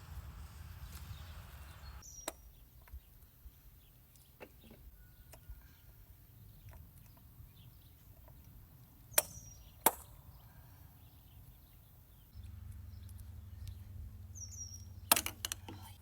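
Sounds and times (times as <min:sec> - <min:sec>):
low steady hum: 0:00.0 - 0:02.0, 0:12.3 - 0:16.0.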